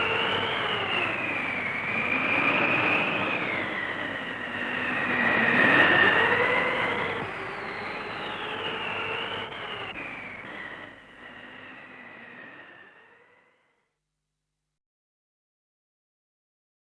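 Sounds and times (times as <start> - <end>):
rushing wind: 0.0 - 12.8
howling wind whistle: 0.0 - 13.6.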